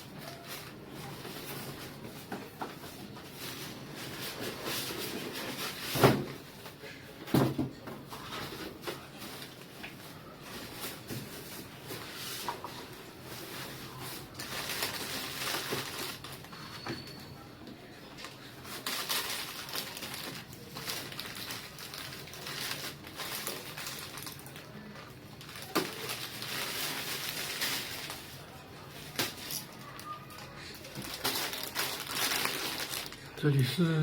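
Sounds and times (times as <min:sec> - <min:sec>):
packaging rustling and crinkling: 0:00.0 - 0:06.8, 0:07.7 - 0:17.0, 0:18.1 - 0:34.0.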